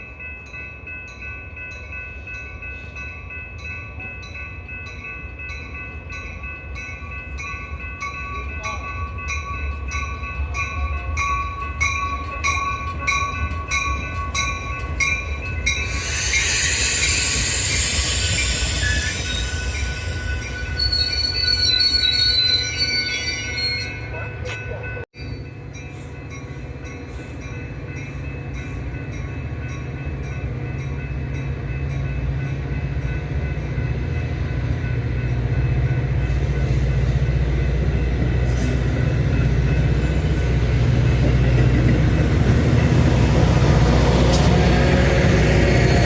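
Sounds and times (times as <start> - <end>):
railroad crossing bell ringing: 0.0 - 46.0
train passing: 0.0 - 46.0
train rumble: 0.0 - 46.0
high wheel squeal: 15.6 - 24.1.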